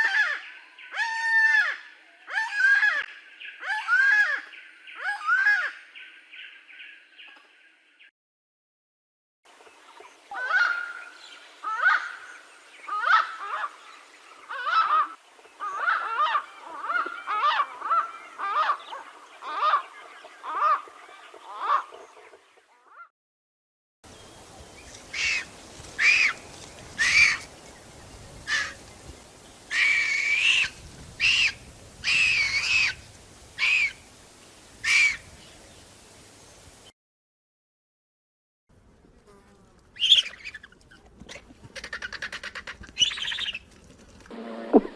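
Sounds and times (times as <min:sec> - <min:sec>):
birds of prey calling: 0:10.3 - 0:22.1, 0:24.1 - 0:36.8.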